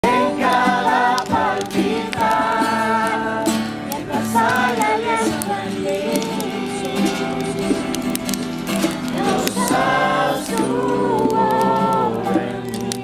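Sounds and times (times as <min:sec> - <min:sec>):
musical accompaniment: 0:00.0 - 0:13.0
worship song singing: 0:00.0 - 0:13.0.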